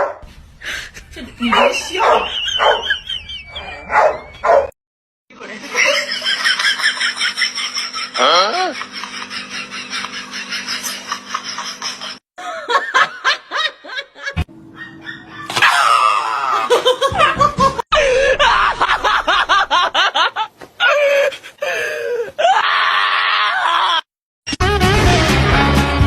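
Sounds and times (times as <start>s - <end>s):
people laughing: 0.7s - 3.9s, 5.4s - 14.5s, 15.3s - 21.2s.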